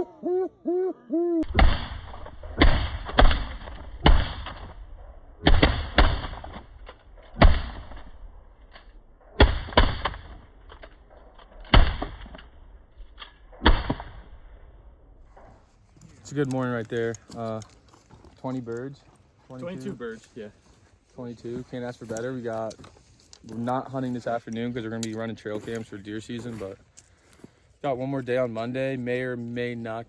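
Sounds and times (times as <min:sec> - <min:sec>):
shotgun shots: 0:01.4 - 0:06.8, 0:07.4 - 0:08.2, 0:09.3 - 0:10.6, 0:11.6 - 0:12.4, 0:13.5 - 0:14.4.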